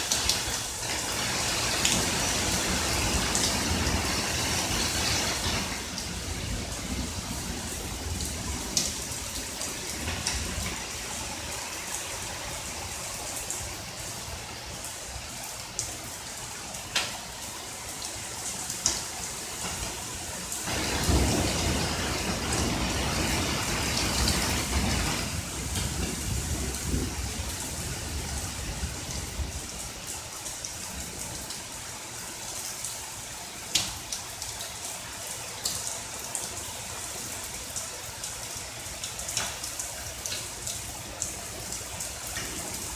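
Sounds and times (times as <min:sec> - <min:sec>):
steady rain: 0:00.0 - 0:42.9
thunder rumbling: 0:01.1 - 0:11.6, 0:20.7 - 0:30.0.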